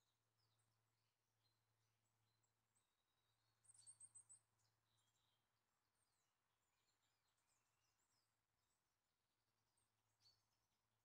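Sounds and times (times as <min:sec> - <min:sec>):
faint woodland birdsong: 0:00.0 - 0:11.0.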